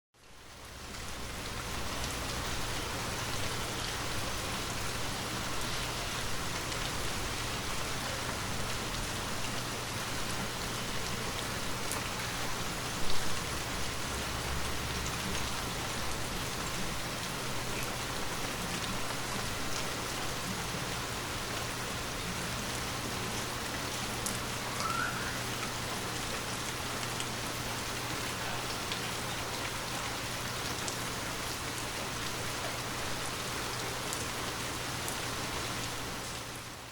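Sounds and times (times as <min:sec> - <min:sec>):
steady rain patter: 0:00.2 - 0:36.9.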